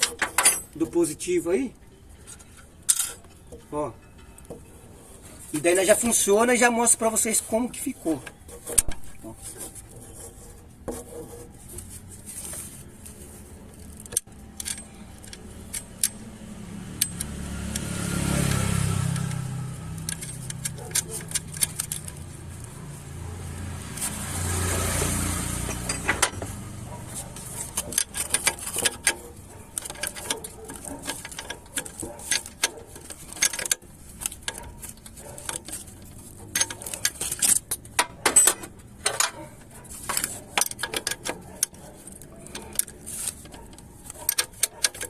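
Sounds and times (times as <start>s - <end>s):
wrench and ratchet clicking: 14.0s - 16.3s, 16.9s - 22.3s, 27.4s - 39.4s, 40.0s - 45.0s.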